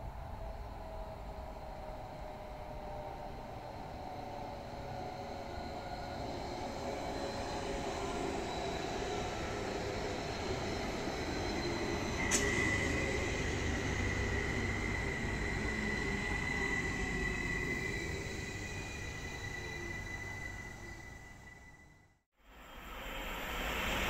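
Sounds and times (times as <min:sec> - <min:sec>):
train rumbling on rails: 0:00.0 - 0:22.0
high wheel squeal: 0:04.4 - 0:22.0.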